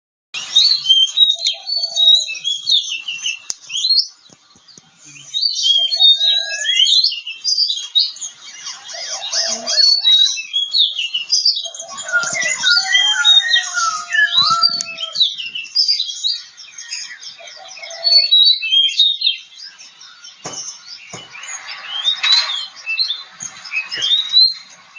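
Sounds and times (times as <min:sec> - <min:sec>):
bird singing whistles and chirps: 0:00.4 - 0:24.9.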